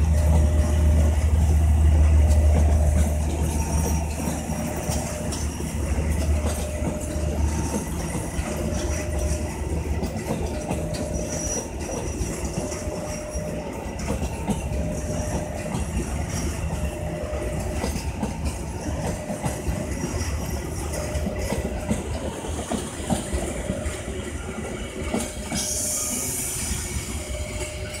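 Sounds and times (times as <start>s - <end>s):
train wheels clacking over rails: 0.0s - 28.0s
wheel squeals: 2.2s - 18.0s
hiss: 25.5s - 27.2s.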